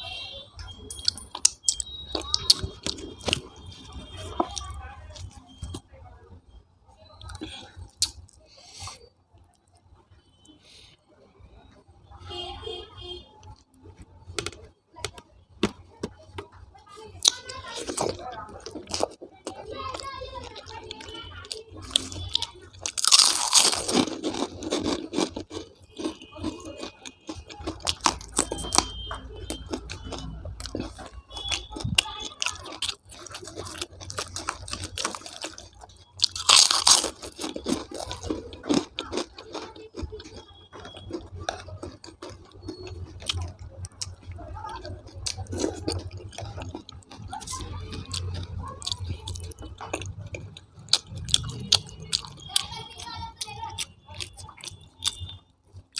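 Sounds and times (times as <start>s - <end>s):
person chewing crunchy food: 0.9s - 5.9s, 7.2s - 9.8s, 17.2s - 55.9s
loud crunchy bites: 21.0s - 44.2s.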